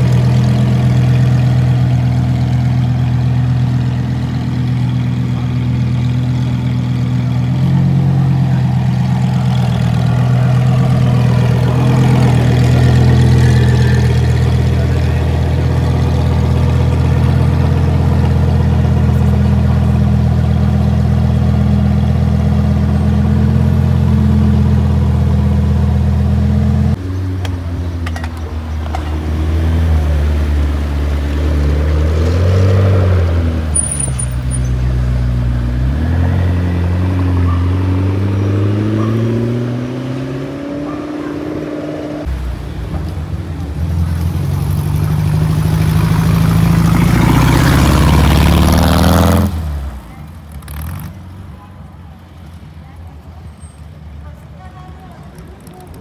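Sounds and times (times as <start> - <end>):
car engine idling: 0.0 - 23.3.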